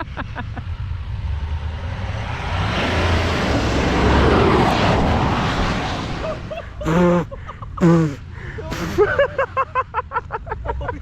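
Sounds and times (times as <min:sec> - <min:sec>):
car engine droning: 0:00.2 - 0:08.4
rushing noise: 0:01.9 - 0:08.2.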